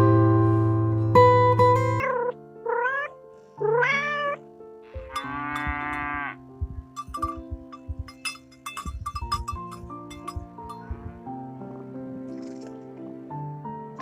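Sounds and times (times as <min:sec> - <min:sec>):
acoustic music: 0:00.0 - 0:14.0
cat meowing: 0:02.0 - 0:06.4.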